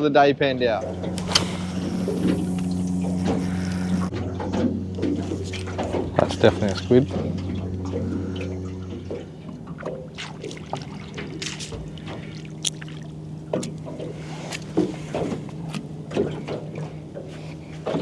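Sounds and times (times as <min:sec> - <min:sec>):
low motor hum: 0:00.2 - 0:18.0
water dribbling and splashing: 0:09.1 - 0:18.0.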